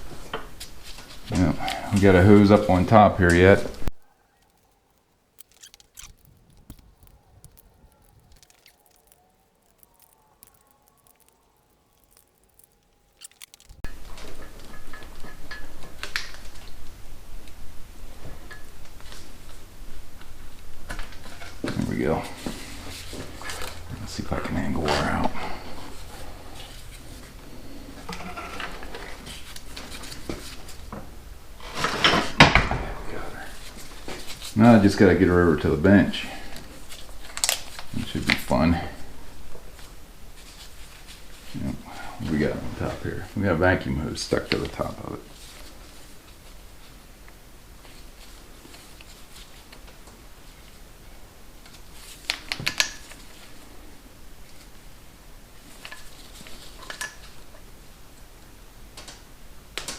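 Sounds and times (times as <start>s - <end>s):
faint tool clicks and rustles: 3.9s - 13.8s.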